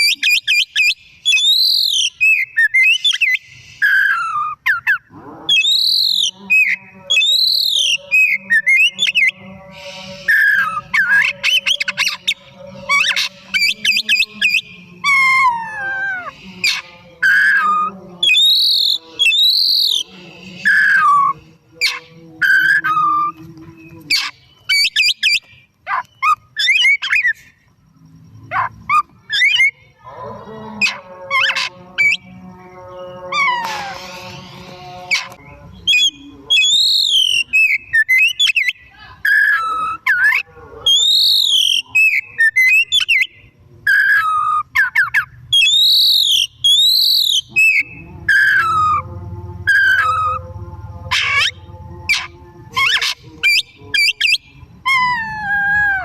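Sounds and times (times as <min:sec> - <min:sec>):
songbird whistling varied phrases: 0:00.0 - 0:05.0, 0:17.2 - 0:20.0.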